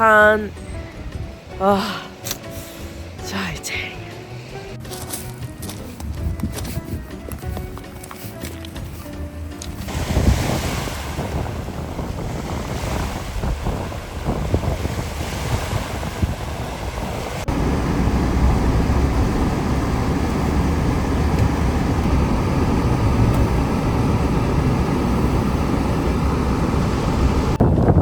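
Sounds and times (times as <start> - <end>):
wind buffeting microphone: 0.6 - 1.6, 5.8 - 8.0, 9.7 - 28.0
surf on shore: 9.7 - 28.0
steady low rumble: 9.8 - 28.0.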